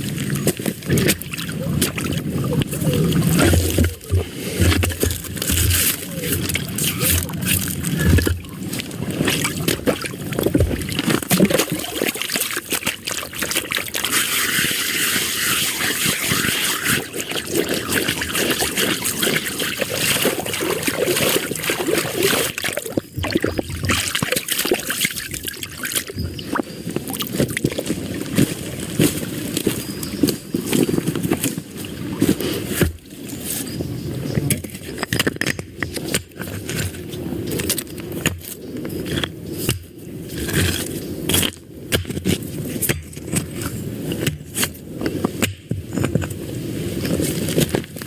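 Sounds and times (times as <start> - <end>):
water trickling and sloshing: 0.0 - 48.0.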